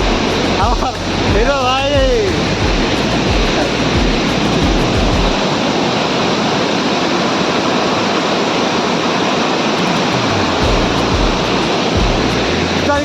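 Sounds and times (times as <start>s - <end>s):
low thumps: 0.0s - 5.5s, 9.8s - 13.0s
waterfall rushing: 0.0s - 13.0s.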